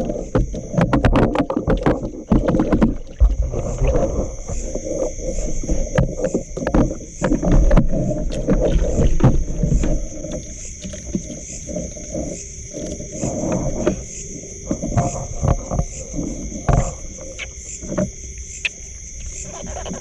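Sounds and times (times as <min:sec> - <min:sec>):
high-pitched insect drone: 0:00.0 - 0:20.0
water sloshing and splashing: 0:00.0 - 0:20.0.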